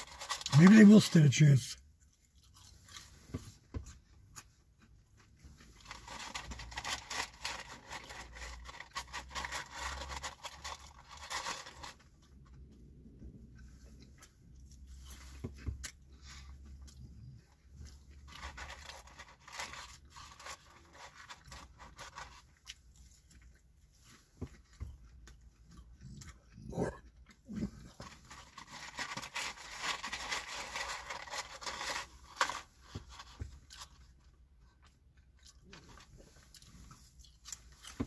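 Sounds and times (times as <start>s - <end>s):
man chewing crunchy fries: 1.9s - 38.0s.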